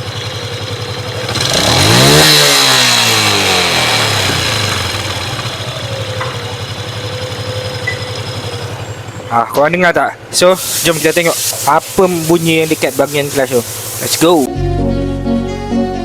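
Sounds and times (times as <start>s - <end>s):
droning hum from clutch: 0.0s - 9.5s
motorcycle engine idling and revving: 0.0s - 10.8s.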